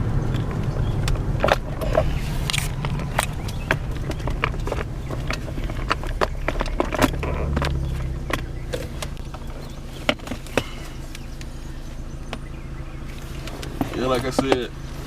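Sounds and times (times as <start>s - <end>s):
low exhaust drone: 0.0s - 15.0s
light clicks and knocks in cabin: 13.6s - 14.7s.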